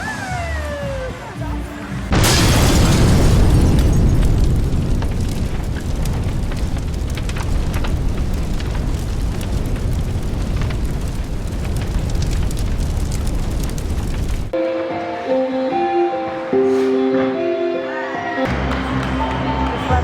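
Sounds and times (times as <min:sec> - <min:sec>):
sharp crackles: 0:02.1 - 0:14.6.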